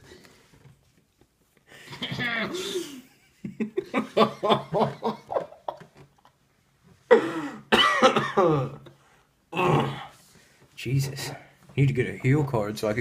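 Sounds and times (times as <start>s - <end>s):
man laughing: 2.0s - 6.0s
man coughing loudly: 7.1s - 8.8s.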